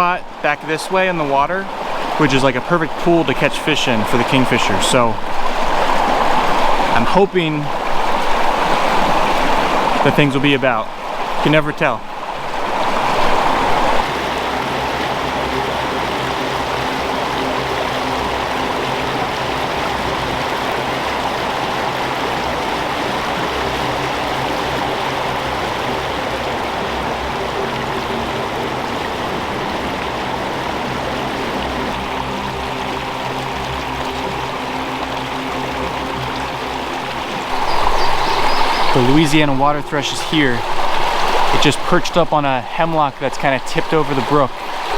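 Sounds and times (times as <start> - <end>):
brook rushing over rocks: 0.0 - 44.9
soft background music: 14.0 - 44.9.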